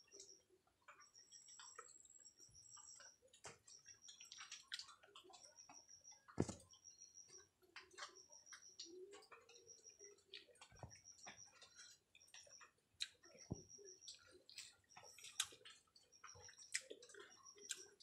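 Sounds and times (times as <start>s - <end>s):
chewing honeycomb: 0.1s - 18.0s.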